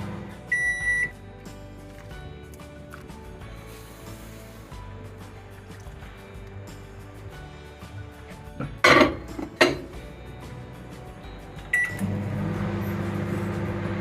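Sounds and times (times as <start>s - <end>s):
microwave running hum: 0.0s - 1.1s, 11.8s - 14.0s
microwave beep: 0.2s - 1.2s, 11.7s - 12.5s.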